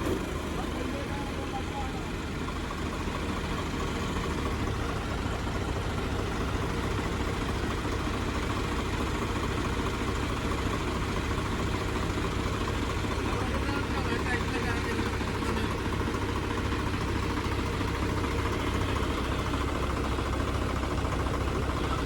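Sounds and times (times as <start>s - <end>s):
diesel tractor engine rumbling: 0.0s - 22.0s.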